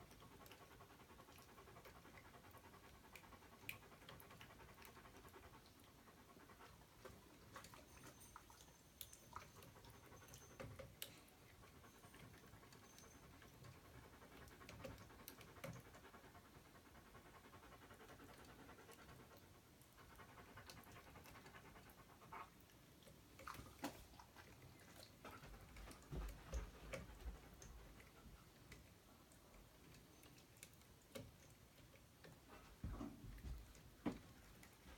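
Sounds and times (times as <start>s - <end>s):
dog panting: 0.0s - 8.6s, 9.2s - 34.9s
faint clicks and taps: 18.2s - 34.9s.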